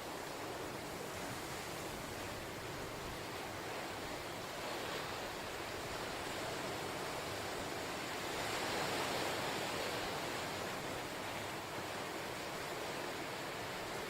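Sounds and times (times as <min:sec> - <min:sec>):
ocean surf washing on shore: 0:00.0 - 0:14.0.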